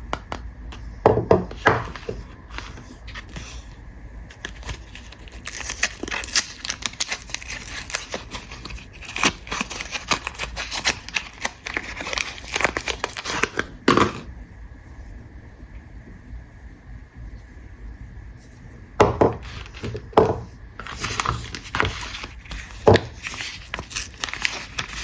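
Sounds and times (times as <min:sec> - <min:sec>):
soap wrapper crinkling and tearing: 0:04.3 - 0:14.2, 0:19.3 - 0:20.0, 0:20.8 - 0:25.0.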